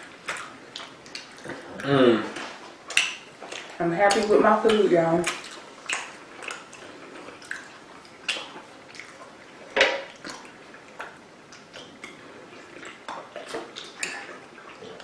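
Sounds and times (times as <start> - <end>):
clicks and clatters of eating: 0.0 - 15.0.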